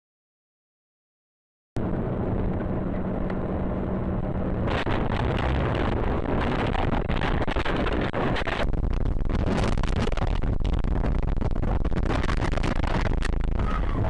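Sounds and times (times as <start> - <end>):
road and engine noise: 1.8 - 14.0
small clicks and crackles: 4.7 - 14.0.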